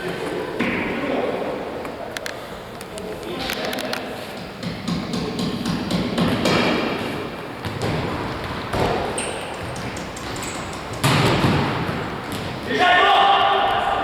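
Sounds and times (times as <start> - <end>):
ball thudding and bouncing: 7.6 - 12.7
sneaker squeak: 7.6 - 12.7.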